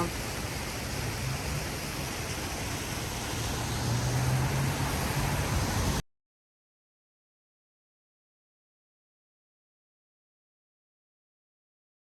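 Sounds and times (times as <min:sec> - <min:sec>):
low traffic hum: 0:00.0 - 0:06.0
waterfall rushing: 0:00.0 - 0:06.0.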